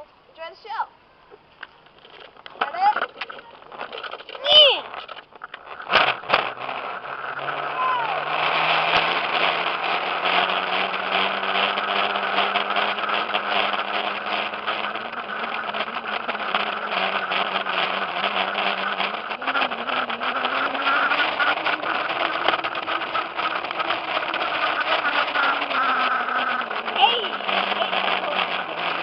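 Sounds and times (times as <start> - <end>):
rattling clicks: 1.3 - 7.6
dirt bike motor running: 1.3 - 29.0.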